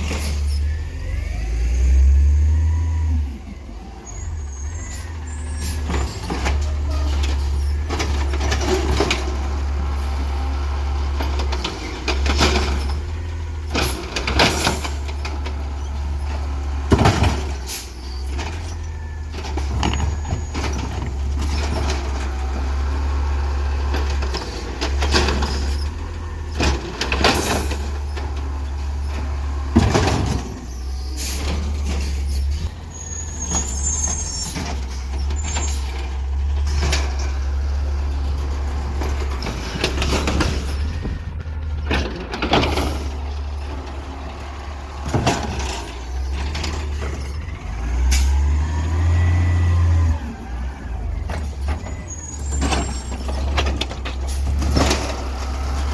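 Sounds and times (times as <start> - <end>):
garbage truck engine rumbling: 0.0 - 55.9
sharp clanks and bangs: 38.8 - 43.8.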